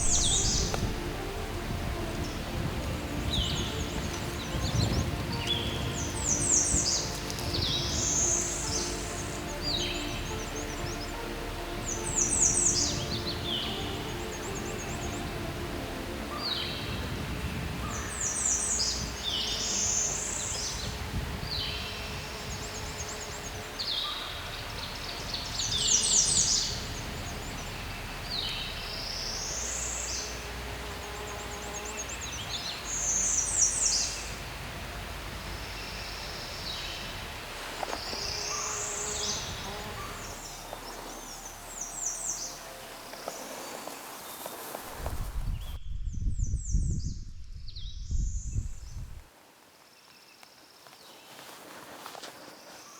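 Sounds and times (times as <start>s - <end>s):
songbirds whistling and trilling: 0.0s - 1.0s, 2.2s - 11.1s
faint outdoor background noise: 0.0s - 46.1s, 47.5s - 52.9s.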